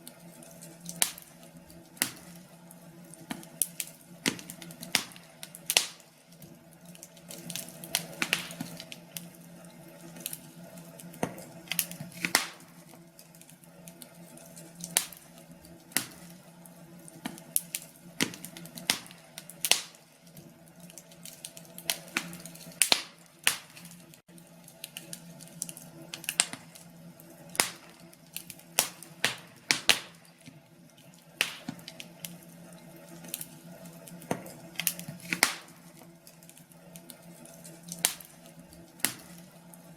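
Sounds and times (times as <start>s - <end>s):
log fire crackling: 0.0s - 39.9s.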